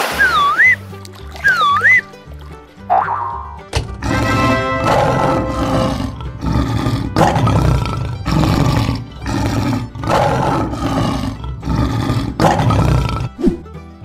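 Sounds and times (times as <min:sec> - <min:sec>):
lion roaring: 0:02.9 - 0:13.4.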